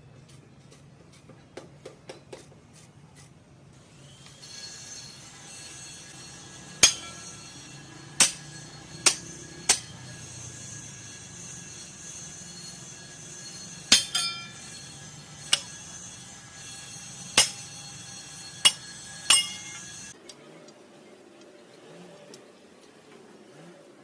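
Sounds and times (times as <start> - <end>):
steady background hum: 5.1 - 21.8
hammer striking metal: 5.7 - 12.1, 13.1 - 20.2.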